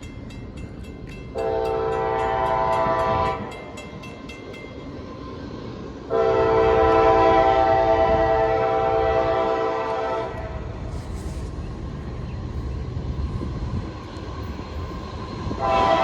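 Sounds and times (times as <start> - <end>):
crossing bell ringing: 0.0 - 5.2
locomotive air horn blasts: 1.4 - 3.5, 6.1 - 10.6, 15.6 - 16.0.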